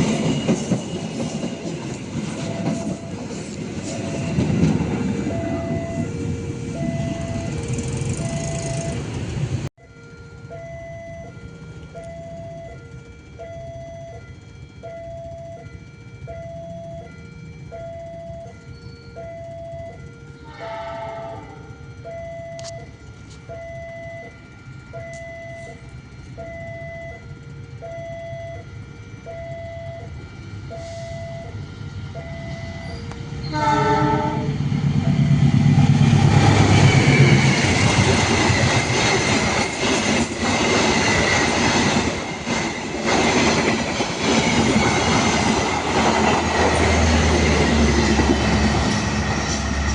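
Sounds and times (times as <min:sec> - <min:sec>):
train passing rumble: 0:00.0 - 0:49.9
level crossing alarm ding-dong: 0:05.3 - 0:09.0, 0:09.8 - 0:34.4
train horn: 0:20.2 - 0:22.0, 0:32.8 - 0:34.6.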